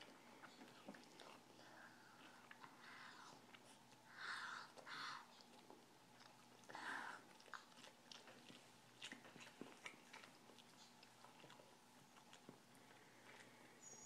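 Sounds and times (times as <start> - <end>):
wet chewing and lip-smacking: 0.0 - 13.7.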